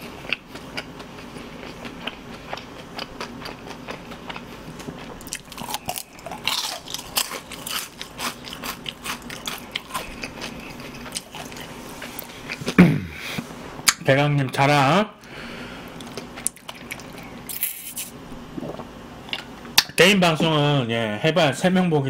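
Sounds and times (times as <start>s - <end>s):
person chewing crunchy food: 0.0s - 12.8s, 15.8s - 19.5s.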